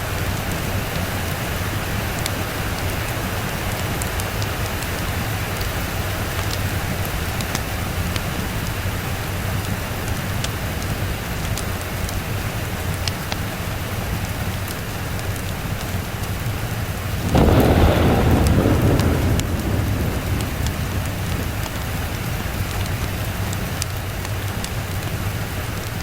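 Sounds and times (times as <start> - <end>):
heavy rain: 0.0 - 26.0
thunderclap rumbling: 17.1 - 24.7.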